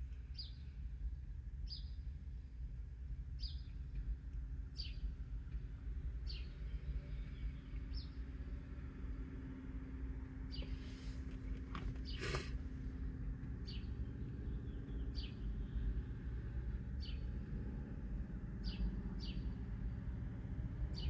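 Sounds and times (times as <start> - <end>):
bird chirping: 13.6 - 15.8, 18.6 - 19.5.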